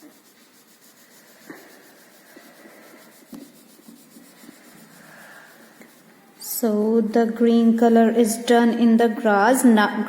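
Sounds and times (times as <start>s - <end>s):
scribbling on paper: 0.0s - 6.8s.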